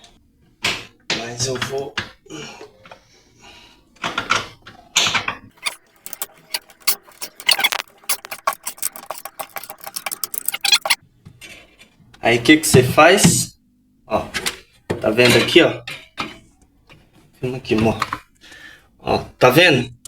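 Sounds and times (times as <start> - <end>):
small hard parts clicking: 5.5 - 11.0.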